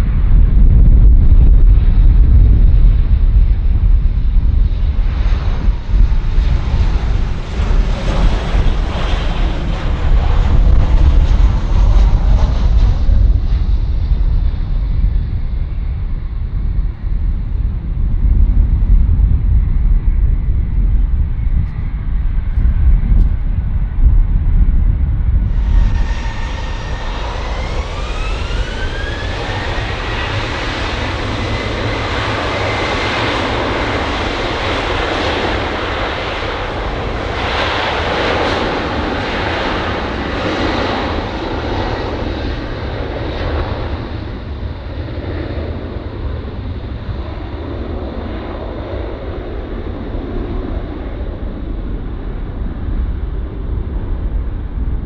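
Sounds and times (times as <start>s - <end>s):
jet engines whining and roaring: 0.0s - 55.0s.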